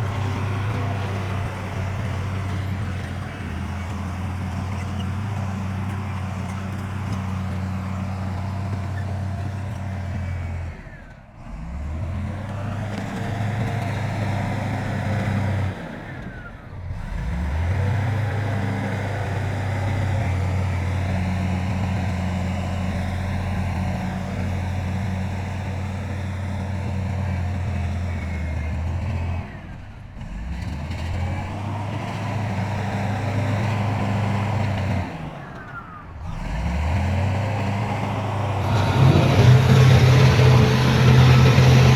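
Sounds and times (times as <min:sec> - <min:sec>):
heavy diesel engines droning: 0:00.0 - 0:41.9.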